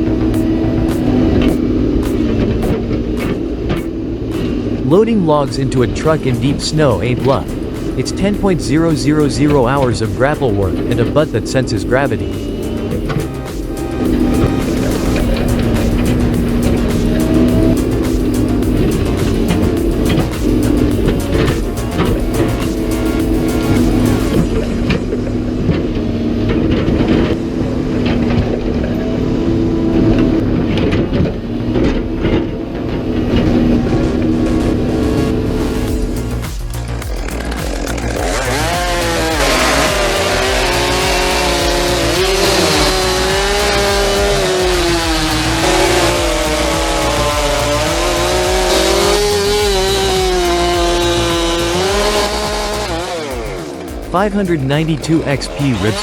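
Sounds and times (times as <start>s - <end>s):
large engine running: 0.0s - 56.0s
knocks and clanks: 0.3s - 4.8s.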